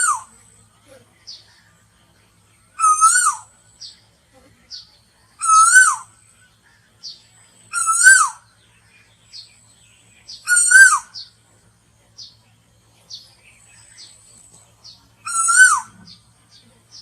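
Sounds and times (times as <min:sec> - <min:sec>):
bird whistled call: 0:00.0 - 0:00.3, 0:02.7 - 0:03.6, 0:05.4 - 0:06.2, 0:07.7 - 0:08.5, 0:10.3 - 0:11.4, 0:15.2 - 0:16.2.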